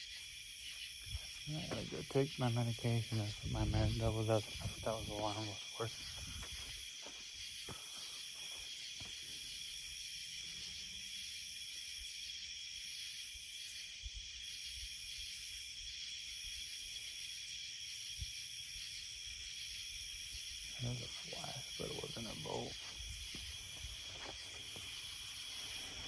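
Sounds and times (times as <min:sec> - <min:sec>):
higher pulsing insect call: 0:00.0 - 0:26.0
insects trilling: 0:00.0 - 0:26.0
faint low thumps: 0:01.1 - 0:06.6.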